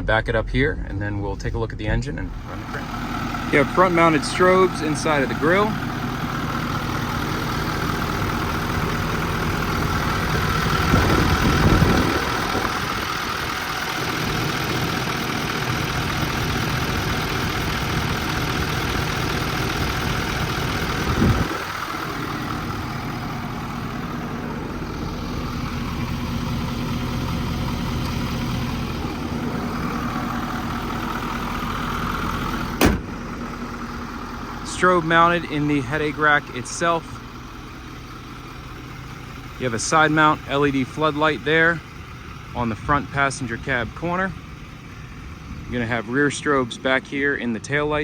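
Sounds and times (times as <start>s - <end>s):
diesel truck engine idling: 0.0s - 48.0s
short knock: 32.8s - 33.1s.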